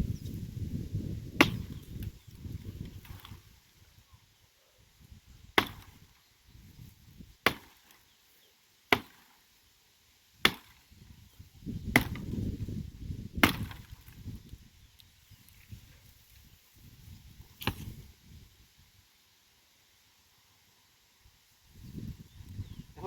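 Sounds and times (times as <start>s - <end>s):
axe chopping firewood: 1.3s - 3.5s, 5.5s - 6.1s, 7.4s - 8.1s, 8.9s - 9.4s, 10.4s - 10.9s, 11.8s - 12.4s, 13.3s - 14.2s, 17.6s - 18.0s.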